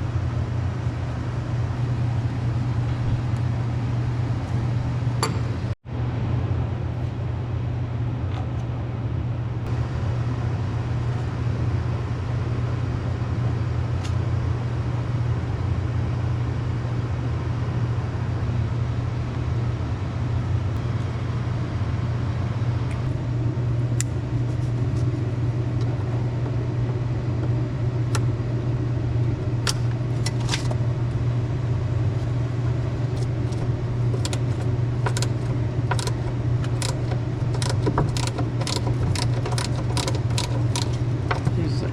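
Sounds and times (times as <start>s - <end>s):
low machine hum: 0.0s - 41.9s.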